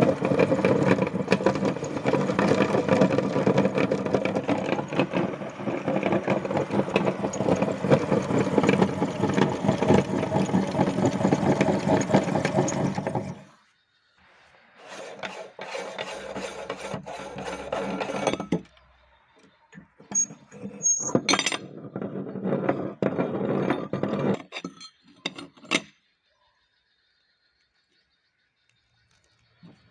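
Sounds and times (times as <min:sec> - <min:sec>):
meat grinder grinding chalk: 0:00.0 - 0:13.6, 0:14.8 - 0:18.5
scraping: 0:00.0 - 0:13.6, 0:14.8 - 0:18.7.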